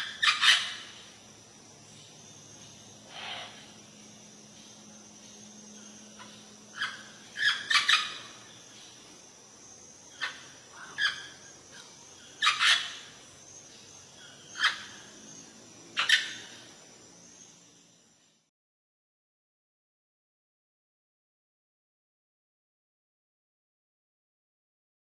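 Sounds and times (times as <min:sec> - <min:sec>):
tropical birds calling: 0:00.0 - 0:18.3.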